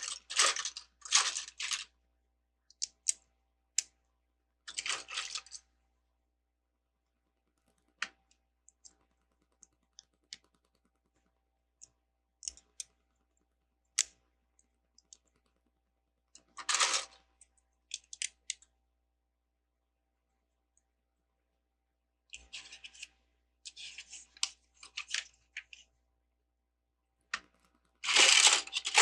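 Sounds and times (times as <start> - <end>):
pieces rattling: 28.0 - 29.0.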